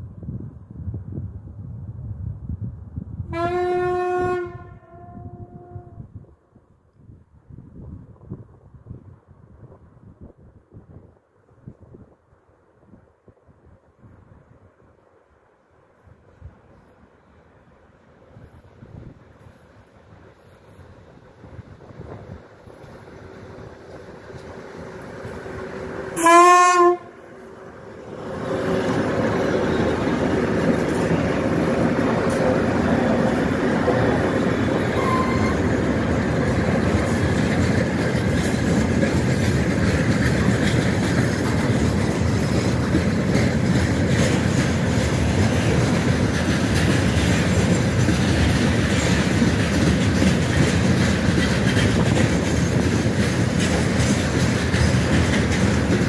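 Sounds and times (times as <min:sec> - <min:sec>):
locomotive horn blast: 0:03.3 - 0:06.1, 0:26.2 - 0:27.2, 0:35.0 - 0:35.7
train wheels clattering on rail joints: 0:18.6 - 0:56.0.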